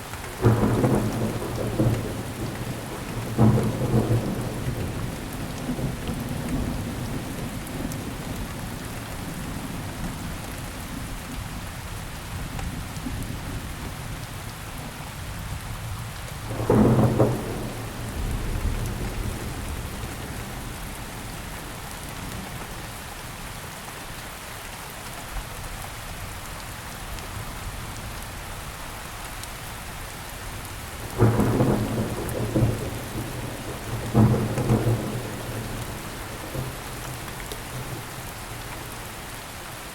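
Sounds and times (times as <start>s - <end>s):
rain falling: 0.0s - 39.9s
thunder cracking and rumbling: 0.3s - 10.3s, 16.4s - 22.7s, 30.8s - 39.4s.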